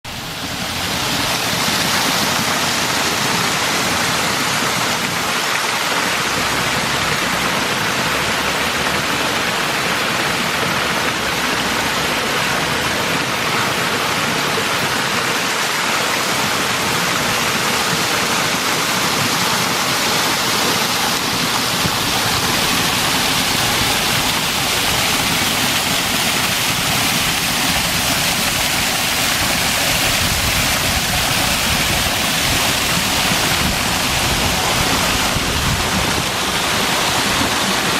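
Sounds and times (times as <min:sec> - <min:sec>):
waterfall splashing into pond: 0:00.1 - 0:37.9.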